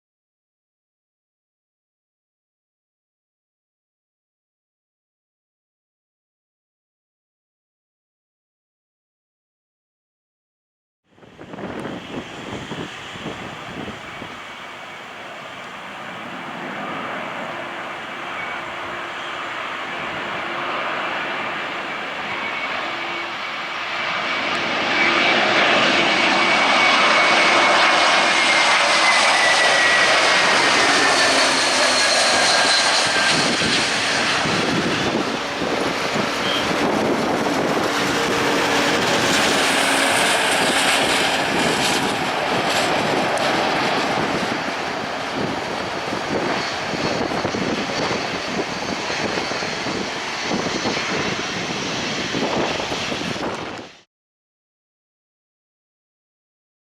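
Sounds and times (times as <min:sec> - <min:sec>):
jet airliner passing: 0:11.1 - 0:54.1.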